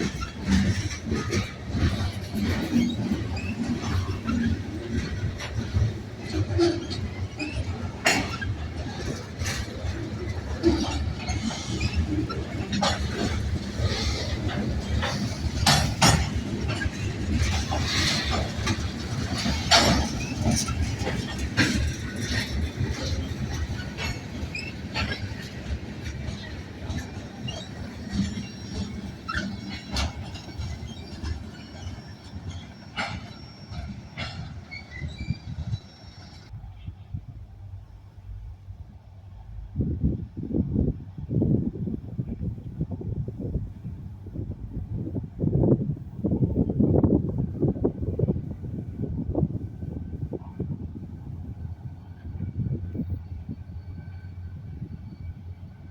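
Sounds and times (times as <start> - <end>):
freight train rolling by: 0.0 - 55.9
metallic clanks of rail cars: 0.0 - 55.9
high wheel squeals: 27.3 - 36.5.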